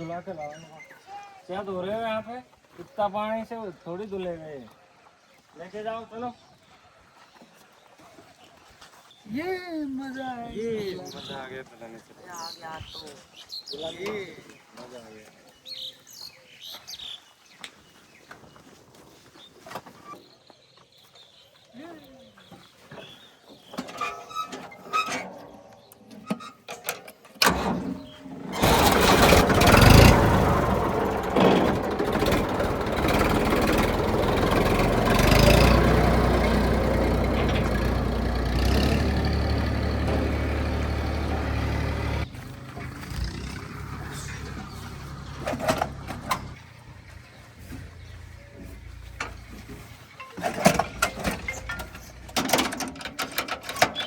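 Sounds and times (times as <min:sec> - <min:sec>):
vehicle engine running: 0:28.5 - 0:52.4.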